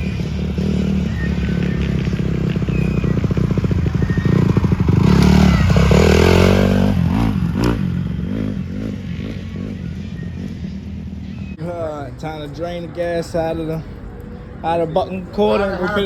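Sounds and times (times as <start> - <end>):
dirt bike engine revving: 0.0 - 11.6.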